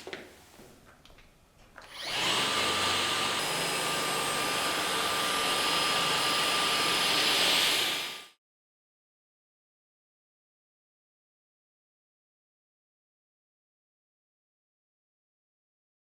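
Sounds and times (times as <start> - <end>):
robot vacuum motor whining: 1.8 - 8.4.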